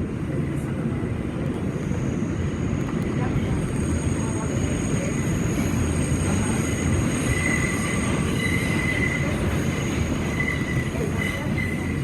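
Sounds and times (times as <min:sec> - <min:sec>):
subway car wheels rumbling: 0:00.0 - 0:12.0
high-pitched wheel squeal: 0:06.6 - 0:12.0.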